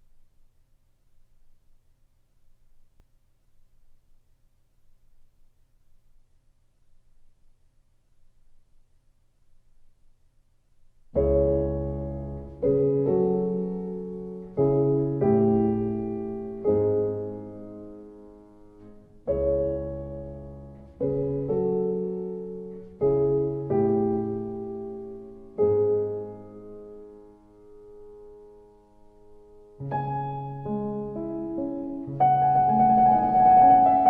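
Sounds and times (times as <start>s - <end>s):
slow solo piano: 11.1s - 34.0s.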